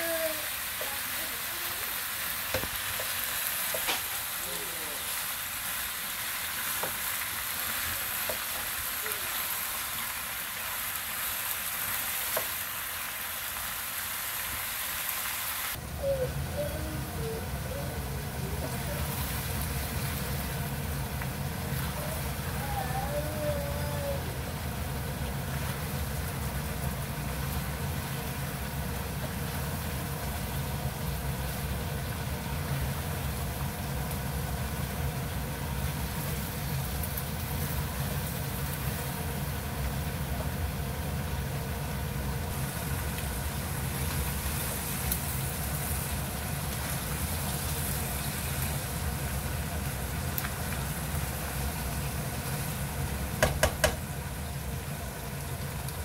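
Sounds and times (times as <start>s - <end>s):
food sizzling in a pan: 0.0s - 56.0s
spatula tapping on pan: 53.4s - 54.1s.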